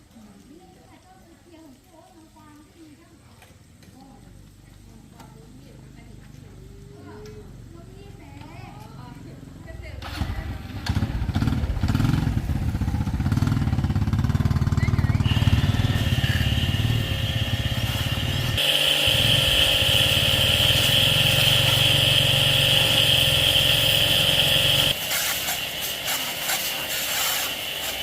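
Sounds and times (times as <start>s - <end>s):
small engine rumbling: 6.4s - 25.0s
high whine: 15.1s - 25.9s.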